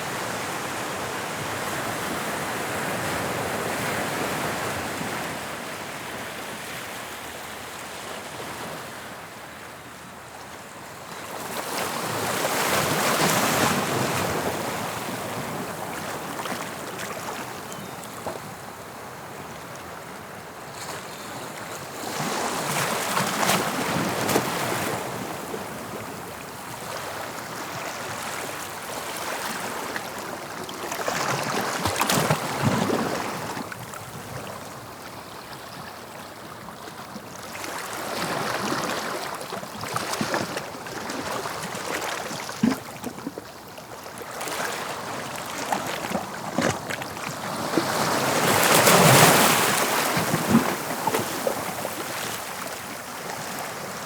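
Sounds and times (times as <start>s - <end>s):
sea waves breaking on shore: 10.8s - 35.2s, 36.9s - 54.0s.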